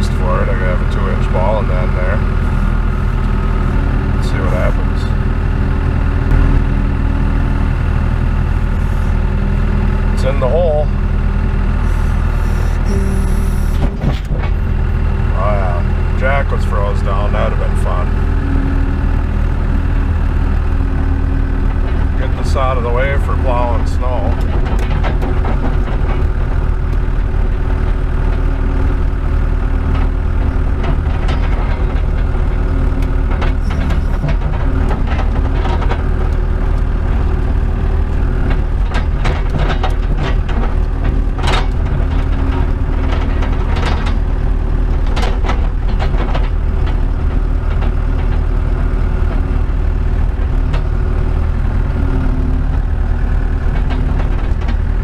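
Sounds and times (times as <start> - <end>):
skid steer engine running: 0.0 - 55.0
sharp metal clanks and squeaks: 11.8 - 14.8, 30.4 - 36.1.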